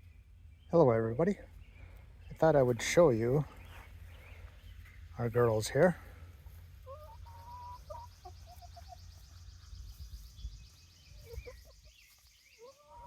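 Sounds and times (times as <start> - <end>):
hens clucking softly: 6.0 - 10.0, 11.0 - 13.0.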